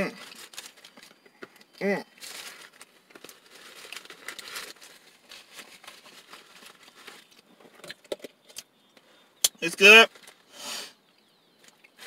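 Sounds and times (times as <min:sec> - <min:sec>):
paper wrapper crinkling: 0:00.2 - 0:07.5, 0:10.1 - 0:10.5.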